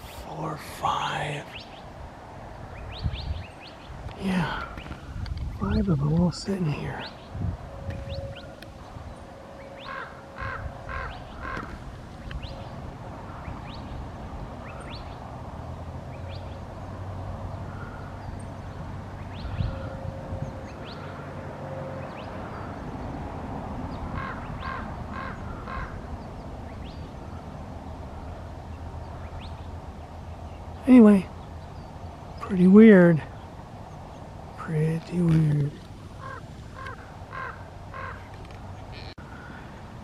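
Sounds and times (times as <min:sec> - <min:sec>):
small birds chirping: 0:00.2 - 0:01.9, 0:02.7 - 0:07.4, 0:08.0 - 0:15.4, 0:23.9 - 0:39.8.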